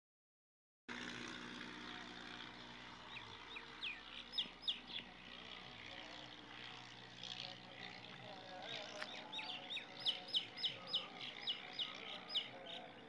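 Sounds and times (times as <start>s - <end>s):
small birds chirping: 2.9s - 6.2s, 7.2s - 13.0s.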